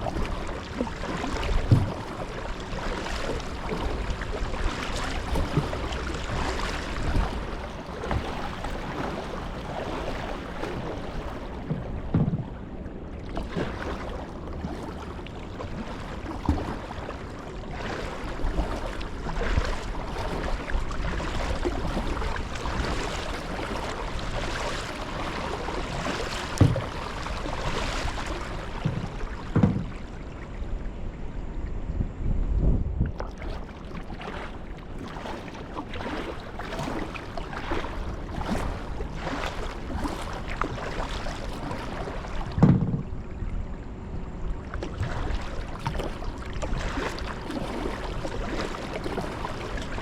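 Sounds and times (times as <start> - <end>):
water splashing around kayak: 0.0 - 31.5, 32.9 - 50.0
short low knocks: 11.6 - 12.6, 28.8 - 30.1, 42.6 - 43.2.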